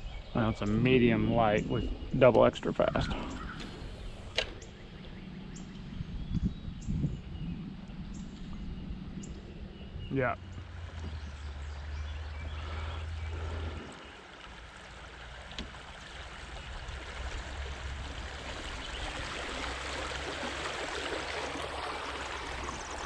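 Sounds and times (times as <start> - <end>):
low rumble: 0.0 - 23.0
creek water rushing over riffles: 10.1 - 23.0.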